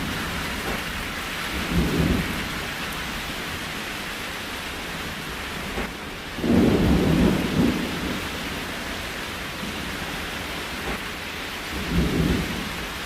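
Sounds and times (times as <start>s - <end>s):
rain hiss: 0.0s - 13.0s.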